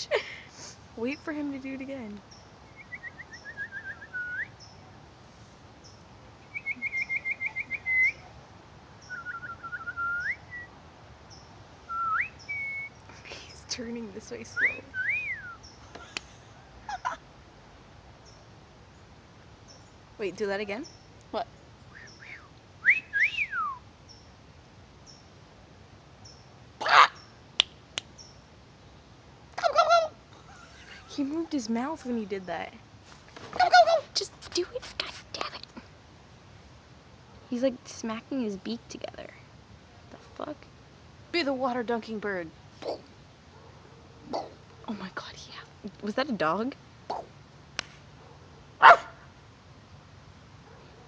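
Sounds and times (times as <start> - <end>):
bird whistling song: 2.7 - 4.8, 6.4 - 8.3, 9.0 - 10.8, 11.9 - 13.1, 14.5 - 15.8, 21.9 - 24.2
bird whistling swooping note: 2.8 - 4.5.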